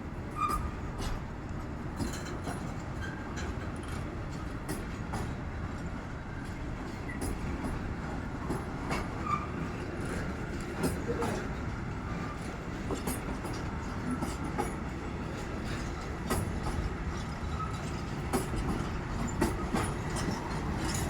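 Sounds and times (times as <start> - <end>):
train rumbling along track: 0.0 - 21.0
wheels clicking over rail joints: 6.4 - 21.0.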